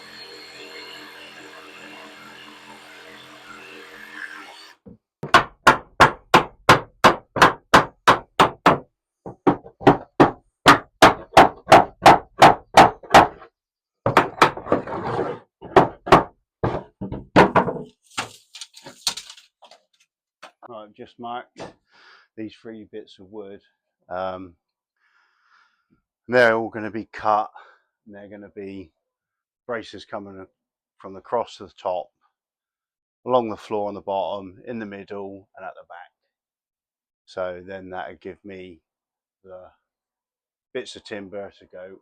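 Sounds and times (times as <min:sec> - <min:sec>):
hammer striking timber: 0:05.2 - 0:13.5, 0:14.1 - 0:14.8, 0:15.6 - 0:17.9.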